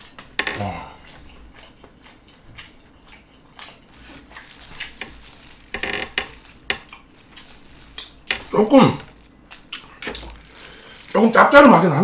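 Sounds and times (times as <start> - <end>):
wet crackly chewing: 0.0 - 11.7
shrimp being pulled apart: 3.9 - 11.3.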